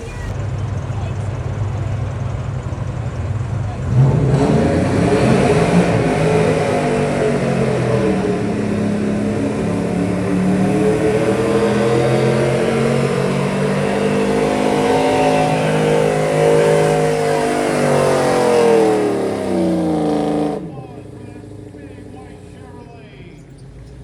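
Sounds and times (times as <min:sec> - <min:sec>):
truck engine at raised revs: 0:00.0 - 0:24.0.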